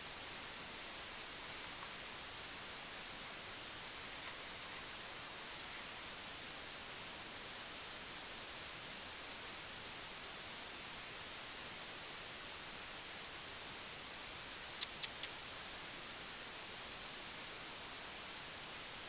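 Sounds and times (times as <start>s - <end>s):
steady hiss: 0.0s - 19.0s
faint ticks: 14.7s - 15.5s.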